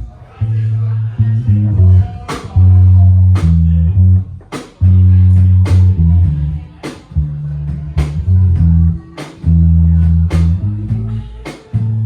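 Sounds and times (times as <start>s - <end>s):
bass guitar line: 0.0s - 12.0s
drum hits on a steady beat: 2.2s - 2.7s, 4.4s - 6.0s, 6.8s - 10.6s.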